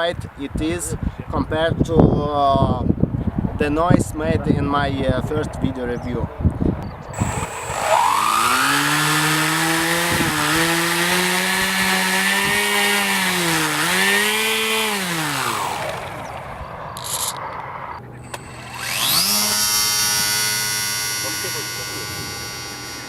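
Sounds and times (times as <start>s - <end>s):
electric motor and propeller whine: 7.2s - 23.0s.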